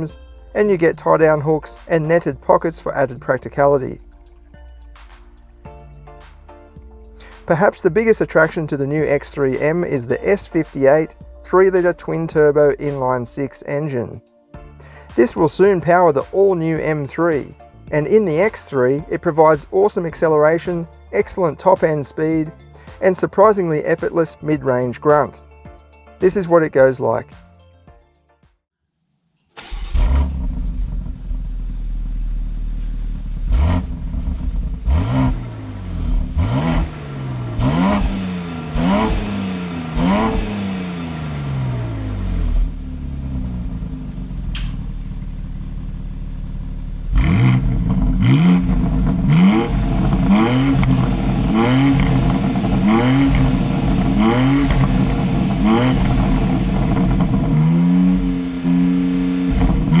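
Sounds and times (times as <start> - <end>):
car engine accelerating hard: 29.6 - 60.0.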